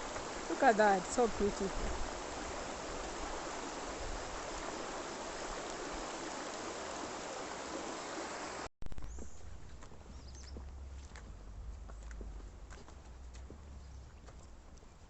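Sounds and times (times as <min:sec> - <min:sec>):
river rushing: 0:00.0 - 0:08.7.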